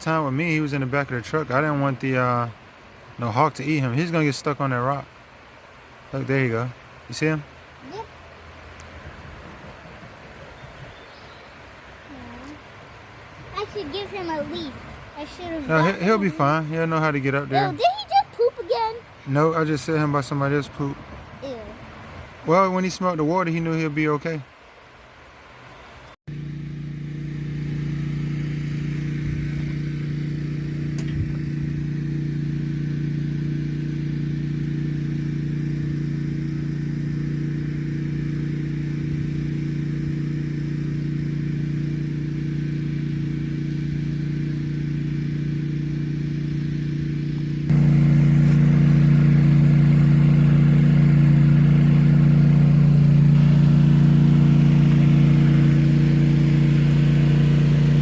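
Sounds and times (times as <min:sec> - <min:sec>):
vehicle engine droning: 0:00.0 - 0:10.8, 0:24.5 - 0:58.0.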